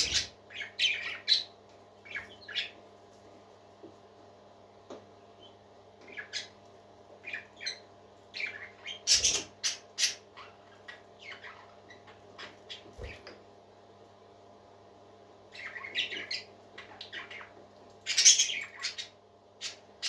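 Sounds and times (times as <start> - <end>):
parakeets chirping and squawking: 0.0 - 2.8, 5.3 - 13.4, 15.5 - 20.0
faint steady hum: 0.0 - 20.0.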